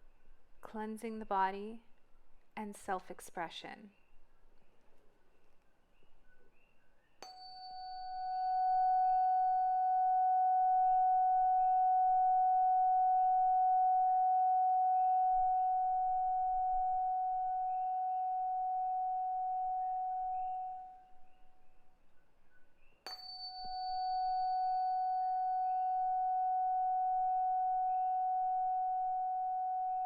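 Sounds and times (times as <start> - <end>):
tuning fork pure tone ringing: 7.2 - 30.0.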